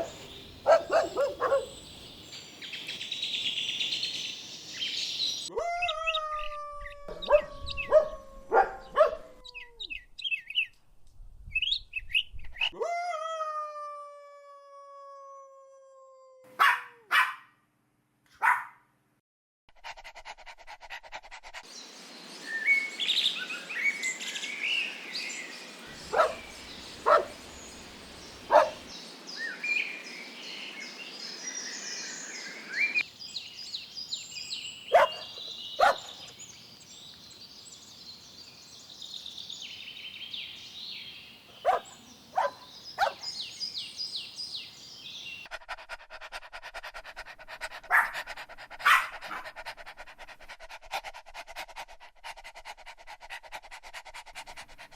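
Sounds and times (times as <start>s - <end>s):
dogs barking: 0.0s - 1.8s, 7.2s - 9.4s, 16.6s - 17.5s, 18.4s - 18.8s, 25.9s - 28.9s, 34.9s - 36.3s, 41.6s - 43.3s, 47.8s - 49.6s
birds chirping: 0.0s - 10.8s, 21.7s - 45.5s
dog panting: 19.7s - 21.7s, 26.0s - 27.8s, 28.4s - 28.9s, 45.5s - 54.9s.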